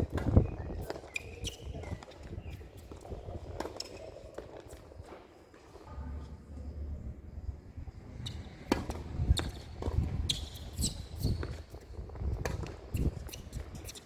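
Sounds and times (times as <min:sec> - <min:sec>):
tennis ball hitting racket and court: 0:00.1 - 0:04.8, 0:08.2 - 0:14.0.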